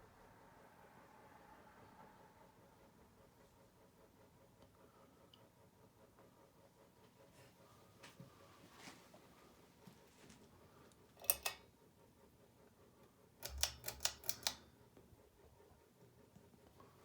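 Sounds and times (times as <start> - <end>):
sharp mechanical clicks: 11.2 - 11.6, 13.4 - 14.7.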